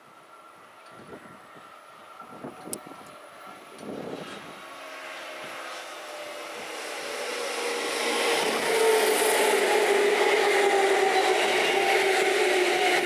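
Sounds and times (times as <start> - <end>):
electric train passing: 0.0 - 13.0.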